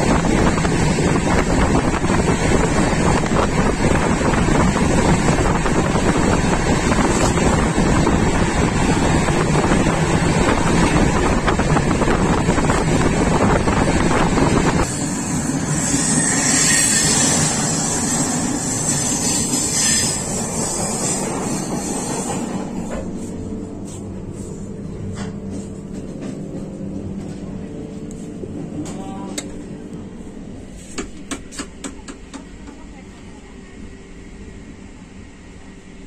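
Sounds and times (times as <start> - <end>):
wind buffeting microphone: 0.0 - 14.9
train running rumble: 0.0 - 36.0.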